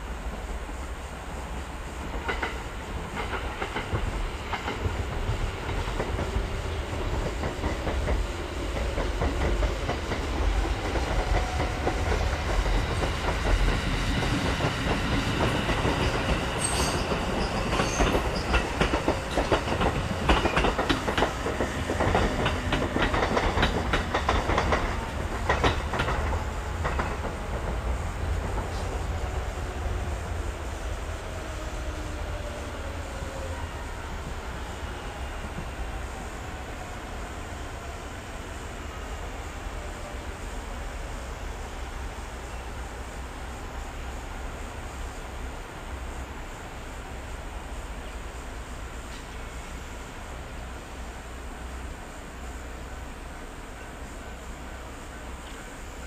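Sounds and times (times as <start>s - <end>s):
electric train rumble: 0.0s - 56.0s
wheels clacking over rail joints: 7.0s - 29.0s.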